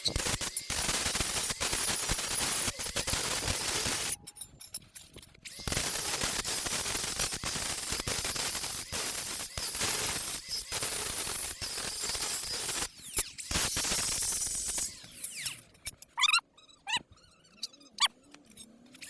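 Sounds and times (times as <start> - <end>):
electric arc crackling and hissing: 0.2 - 4.1, 5.6 - 12.8.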